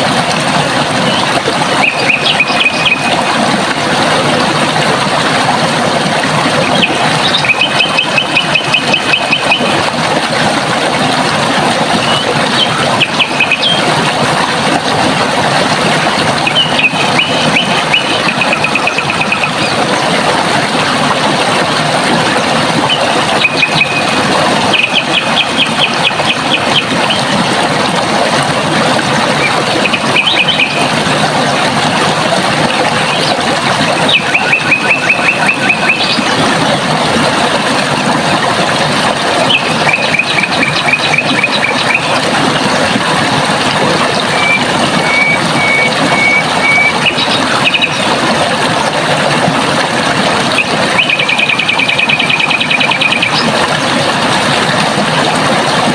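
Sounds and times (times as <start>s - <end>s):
running water rushing: 0.0s - 55.9s
bird singing fast trills: 1.8s - 3.1s, 23.0s - 26.9s, 34.1s - 36.2s.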